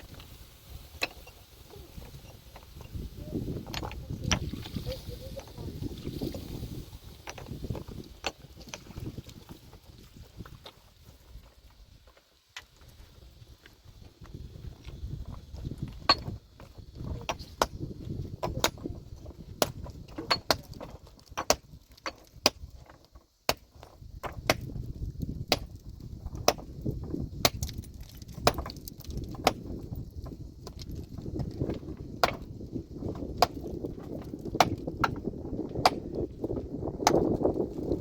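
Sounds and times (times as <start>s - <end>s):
metal tool striking rock: 0.9s - 1.4s, 7.2s - 8.9s, 15.8s - 18.9s, 19.6s - 24.7s, 25.5s - 26.7s, 27.4s - 29.8s, 31.6s - 32.5s, 33.1s - 36.2s, 36.9s - 37.4s.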